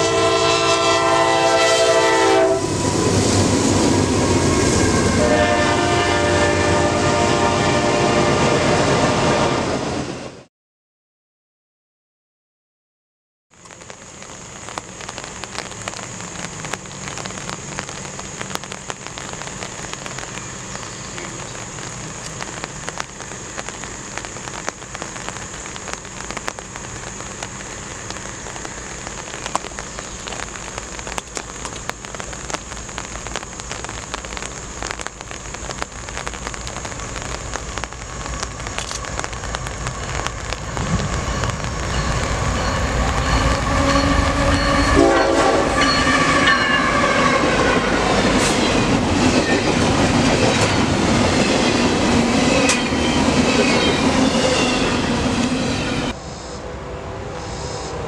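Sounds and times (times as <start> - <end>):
crackling hiss with high drone: 0.0 - 8.1, 13.6 - 56.7
locomotive engine rumble: 13.7 - 56.4.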